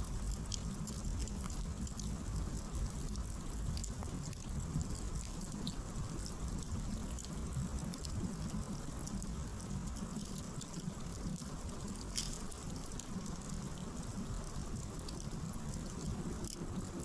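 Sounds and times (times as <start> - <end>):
firewood crackling and popping: 0.0 - 17.0
low rumble of flames: 0.0 - 17.0.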